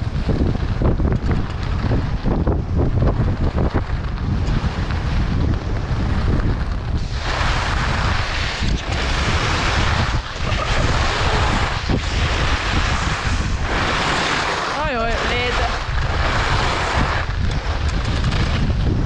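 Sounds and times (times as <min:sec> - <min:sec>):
wind buffeting microphone: 0:00.0 - 0:19.0
loud hiss: 0:06.9 - 0:17.9.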